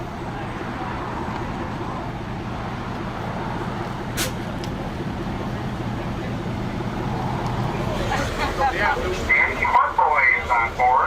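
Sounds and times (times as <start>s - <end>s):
traffic noise with low hum: 0.0s - 11.0s
short sharp hiss: 4.2s - 4.4s.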